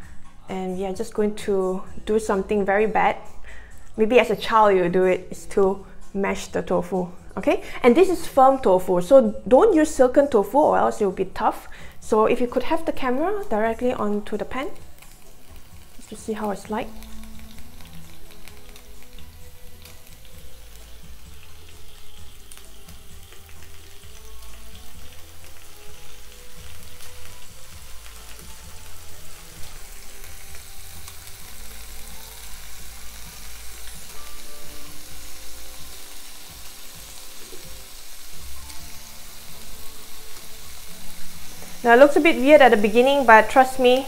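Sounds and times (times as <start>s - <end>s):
tofu sizzling in hot oil: 11.9s - 44.0s.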